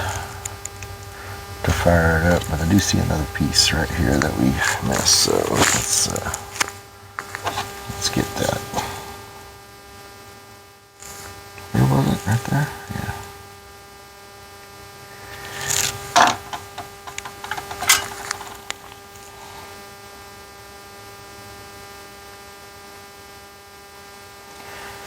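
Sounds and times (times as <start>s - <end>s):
electrical hum: 0.0s - 25.0s
small clicks: 15.5s - 19.0s.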